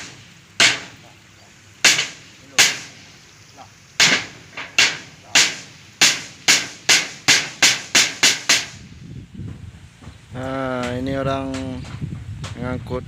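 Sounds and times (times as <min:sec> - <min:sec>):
sharp hammer strikes: 0:00.0 - 0:01.0, 0:01.8 - 0:03.1, 0:04.0 - 0:08.8.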